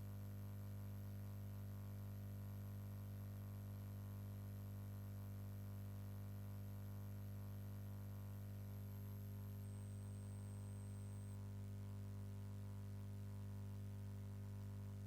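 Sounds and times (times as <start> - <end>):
faint electrical hum: 0.0 - 15.0
faint high whine: 6.2 - 13.8.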